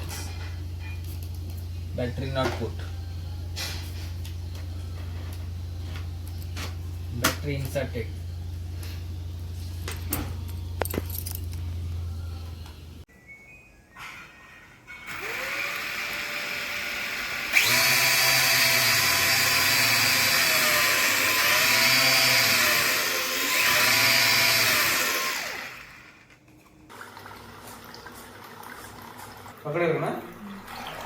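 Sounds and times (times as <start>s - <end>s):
electric motor whining: 15.1s - 26.2s.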